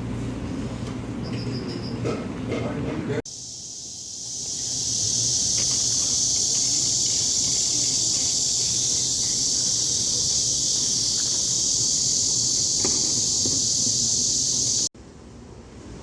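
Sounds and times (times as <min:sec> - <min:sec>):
insects buzzing: 0:03.3 - 0:14.9.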